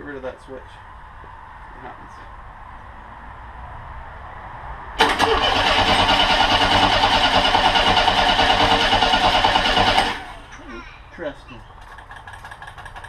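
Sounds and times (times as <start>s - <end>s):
trike engine cranking: 5.0s - 10.6s, 11.7s - 13.0s
man speaking: 10.7s - 11.7s.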